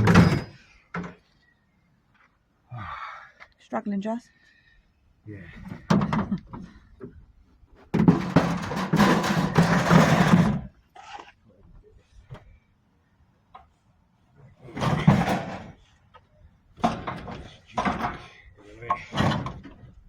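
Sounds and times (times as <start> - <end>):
scrap metal scraping: 8.0 - 11.2.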